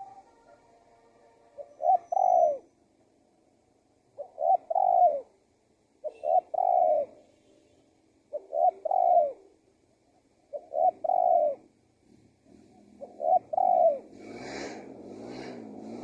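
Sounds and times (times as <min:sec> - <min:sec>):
dove cooing: 0:00.0 - 0:00.5, 0:01.5 - 0:02.7, 0:04.2 - 0:05.4, 0:06.0 - 0:07.2, 0:08.3 - 0:09.6, 0:10.5 - 0:11.7, 0:12.5 - 0:14.8.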